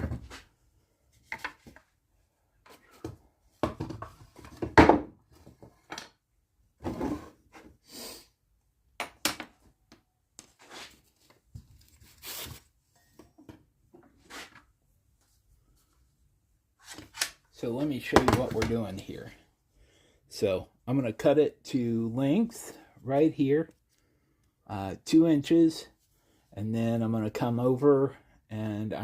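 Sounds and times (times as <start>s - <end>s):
wood and tools knocking: 3.0s - 6.2s.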